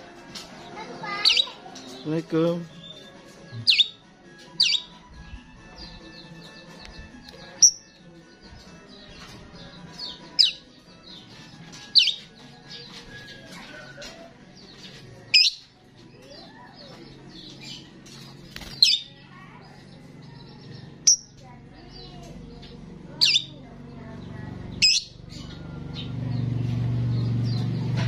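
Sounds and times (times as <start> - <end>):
starling chattering and warbling: 0.5 - 2.0, 11.8 - 25.9
starling sharp high calls: 24.8 - 25.2.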